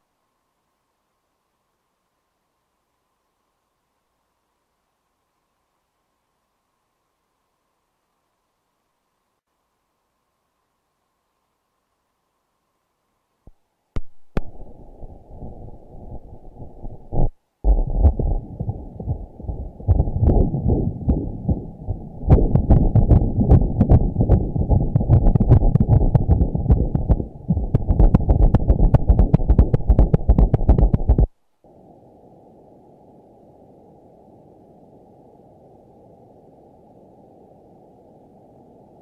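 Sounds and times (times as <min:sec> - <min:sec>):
ultrasound heartbeat pulses: 0:13.5 - 0:31.3.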